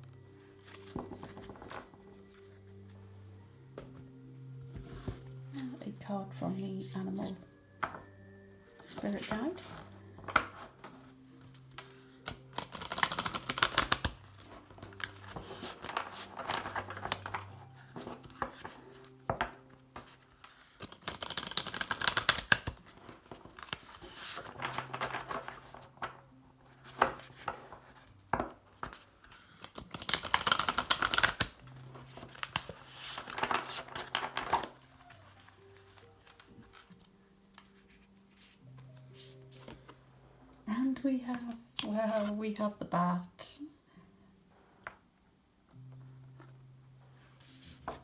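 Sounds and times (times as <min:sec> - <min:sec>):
cards riffling: 0:11.7 - 0:14.2, 0:20.0 - 0:22.8, 0:28.8 - 0:38.6
cards clicking when handled: 0:29.6 - 0:31.5.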